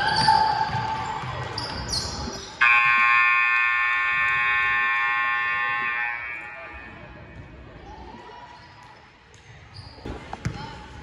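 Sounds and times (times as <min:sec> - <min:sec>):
sneakers squeaking on hardwood: 0:01.6 - 0:02.6
scoreboard buzzer blast: 0:02.6 - 0:07.0.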